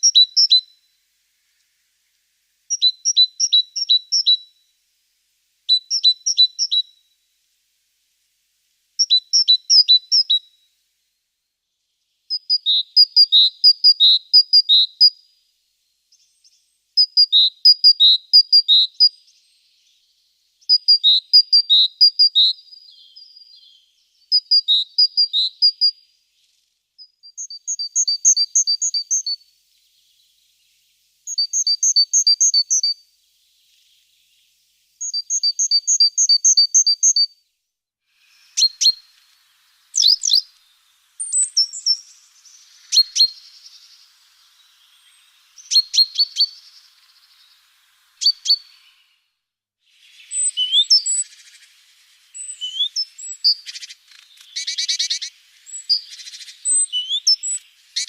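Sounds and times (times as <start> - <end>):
great tit singing: 0.0 - 0.7, 2.7 - 4.4, 5.7 - 6.9, 9.0 - 10.4, 16.1 - 29.4, 31.3 - 37.4, 38.2 - 49.2, 50.0 - 58.0.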